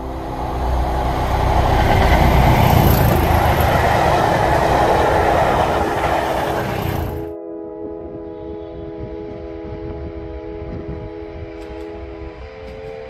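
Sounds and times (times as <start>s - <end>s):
diesel train passing: 0.0s - 7.3s.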